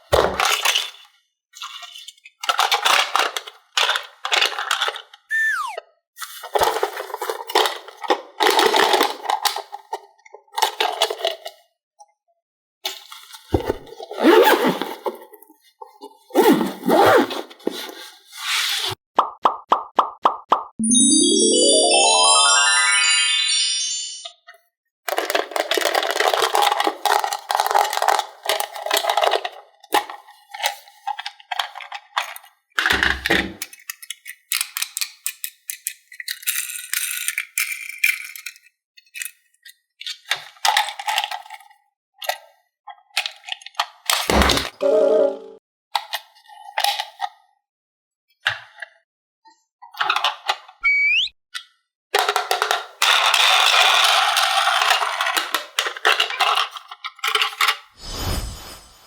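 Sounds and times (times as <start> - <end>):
toy pieces clattering: 2.4 - 5.6, 25.1 - 29.5, 33.7 - 39.4, 52.2 - 57.8
falling whistle-like glide: 5.3 - 5.8, 50.8 - 51.4.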